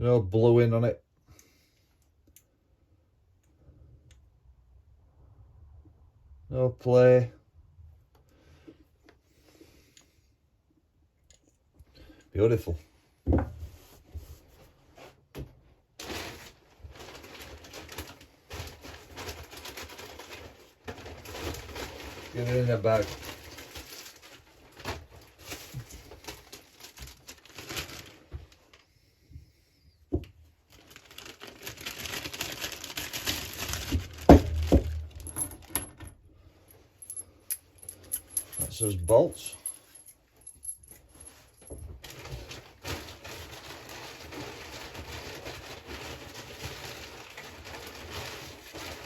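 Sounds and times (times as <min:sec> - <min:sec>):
knocks on a bench: 0:13.3 - 0:13.6
plastic bag rustling: 0:15.8 - 0:28.8, 0:30.4 - 0:35.8, 0:37.0 - 0:49.0
parts rustling and clicking: 0:34.5 - 0:42.6
metal bolts clinking: 0:37.0 - 0:41.1.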